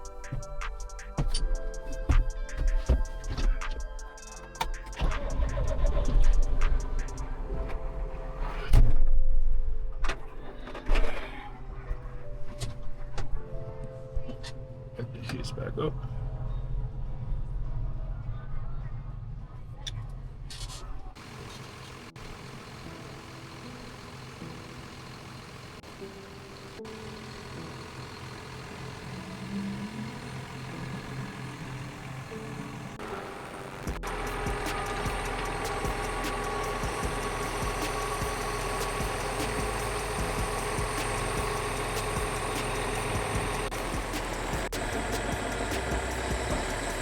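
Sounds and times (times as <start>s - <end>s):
faint regular ticking: 0.0s - 5.0s
vehicle engine running: 0.0s - 8.7s, 21.2s - 47.0s.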